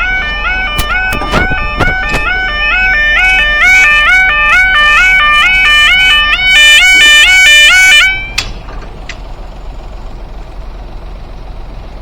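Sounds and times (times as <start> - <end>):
two-tone warning alarm: 0.0 - 8.5
clicks: 0.8 - 2.4.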